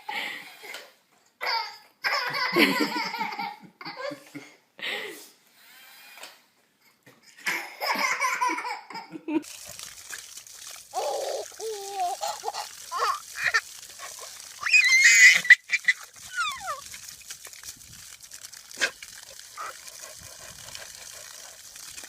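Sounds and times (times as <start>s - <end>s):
animal calls and squeals: 14.6s - 16.8s.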